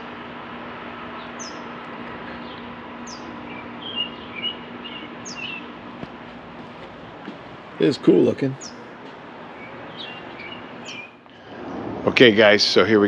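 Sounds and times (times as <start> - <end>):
faint steady hum: 0.0 - 13.0
small birds chirping: 1.1 - 11.4.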